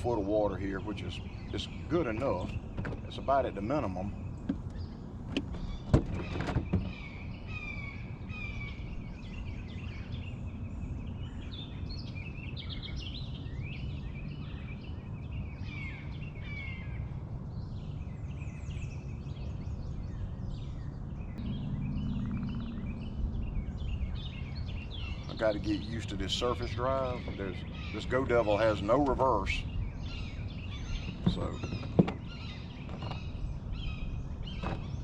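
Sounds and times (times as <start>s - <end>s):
songbirds chirping and singing: 0.0s - 35.0s
steady low rumble: 6.9s - 35.0s
sharp knocks: 31.0s - 32.2s.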